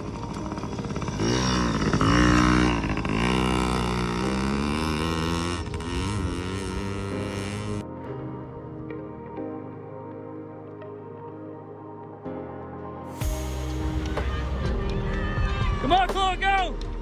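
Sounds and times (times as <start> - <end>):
dirt bike engine revving: 0.2 - 7.8.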